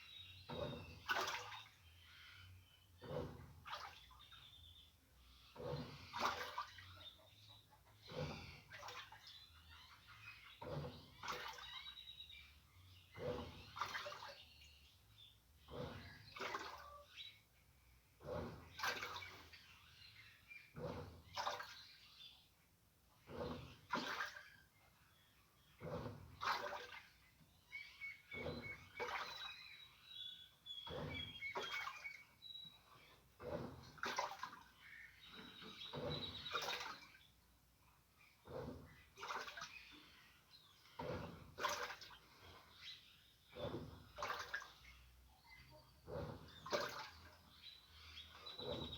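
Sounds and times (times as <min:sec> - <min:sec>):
washing machine water sloshing: 0:00.0 - 0:48.9.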